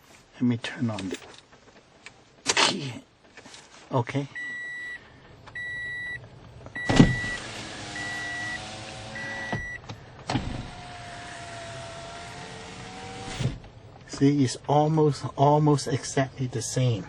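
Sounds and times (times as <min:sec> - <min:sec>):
car warning chime beeping: 0:04.4 - 0:06.2, 0:06.8 - 0:09.8
power window motor whine: 0:06.8 - 0:13.7.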